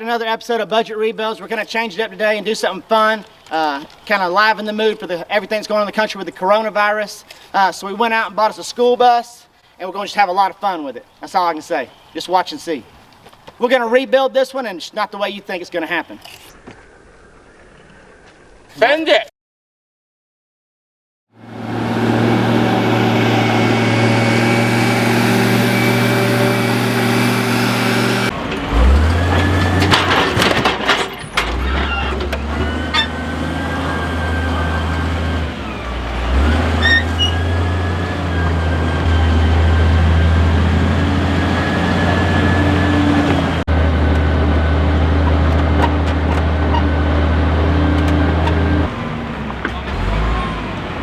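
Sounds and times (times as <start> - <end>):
bus engine running: 21.4 - 51.0.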